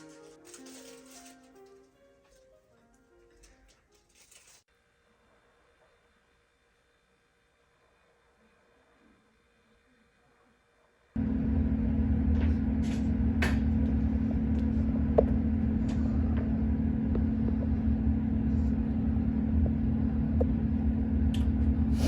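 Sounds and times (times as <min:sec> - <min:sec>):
low rumble with hum: 0:11.2 - 0:22.0.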